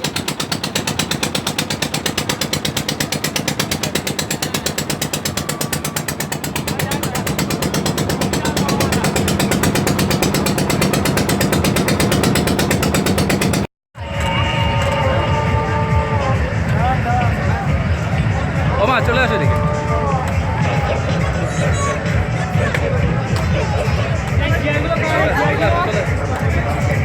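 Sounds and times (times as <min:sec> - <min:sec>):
boat engine chugging: 0:00.0 - 0:27.0.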